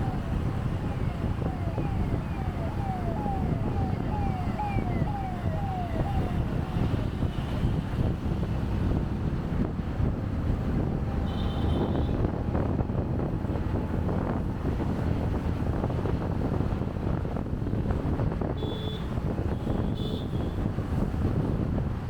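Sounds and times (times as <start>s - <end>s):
motorcycle engine rumble: 0.0s - 8.3s
traffic: 0.0s - 22.0s
wind buffeting microphone: 0.0s - 22.0s.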